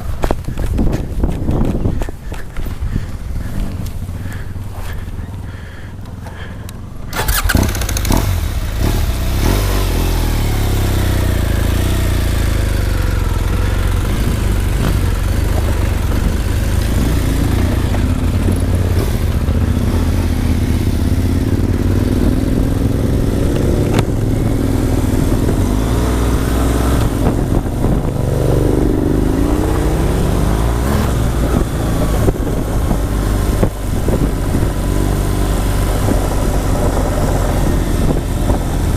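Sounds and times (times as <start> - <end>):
motorcycle engine revving: 3.2 - 38.9.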